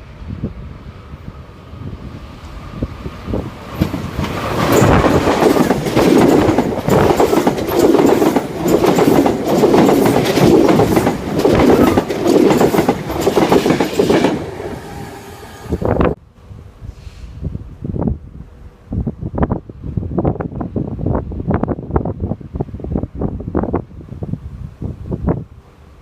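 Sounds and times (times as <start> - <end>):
train wheels clattering: 3.6 - 14.7.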